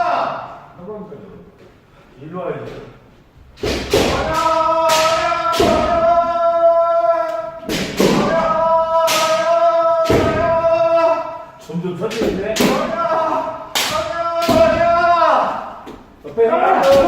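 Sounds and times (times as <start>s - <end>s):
people shouting long calls: 0.0s - 0.8s, 3.9s - 11.6s, 12.6s - 17.0s
bamboo swords striking armour: 3.6s - 6.1s, 7.6s - 10.5s, 12.2s - 12.9s.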